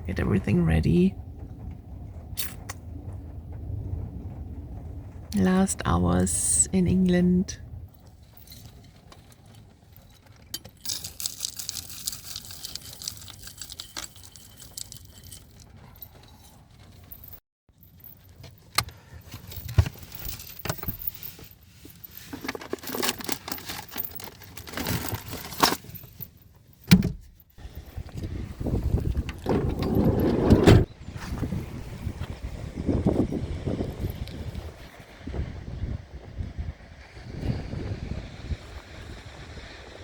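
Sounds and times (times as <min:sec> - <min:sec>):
low rumble: 0:00.0 - 0:08.5, 0:27.6 - 0:39.1
small objects jingling and clinking: 0:08.1 - 0:26.8.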